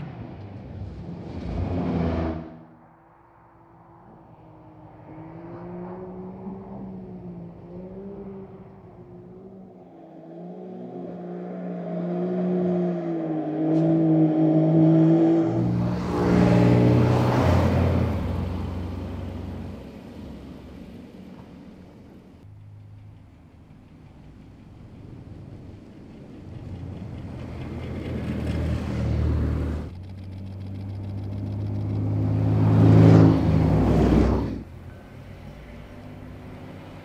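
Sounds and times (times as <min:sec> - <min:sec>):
car passing with rush of noise: 0:00.0 - 0:37.0
car engine revving: 0:26.6 - 0:37.0.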